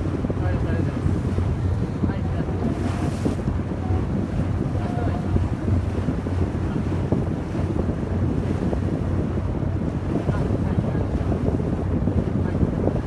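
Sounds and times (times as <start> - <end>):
boat engine low rumble: 0.0 - 13.0
wind buffeting microphone: 0.0 - 13.0.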